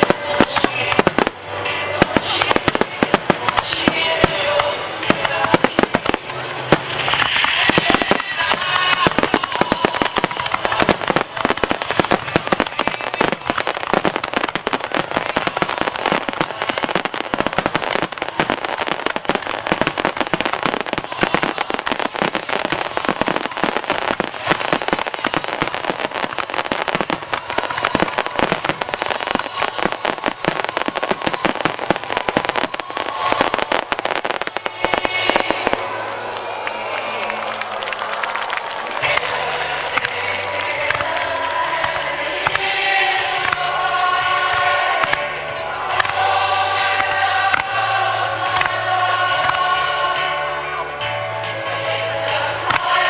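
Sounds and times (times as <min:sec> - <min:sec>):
fireworks bursts and crackles: 0:00.0 - 0:53.0.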